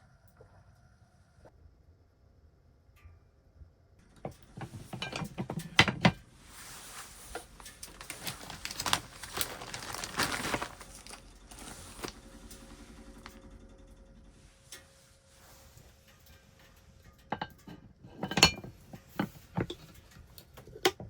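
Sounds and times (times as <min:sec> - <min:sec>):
crinkling and rustling: 0:04.2 - 0:13.5, 0:14.6 - 0:21.0.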